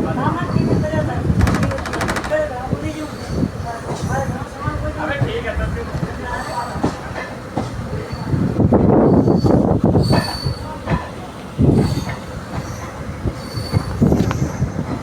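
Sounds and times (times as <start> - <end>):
train wheels clattering on rails: 0.2 - 15.0
knocks: 1.4 - 2.6.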